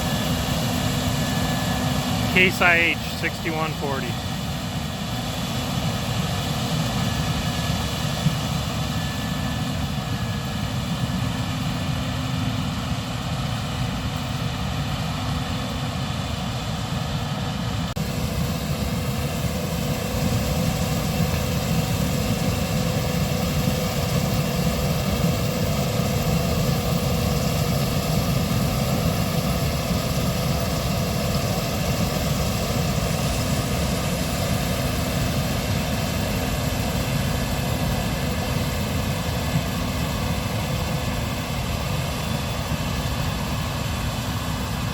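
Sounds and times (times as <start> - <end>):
combine harvester engine drone: 0.0 - 44.9.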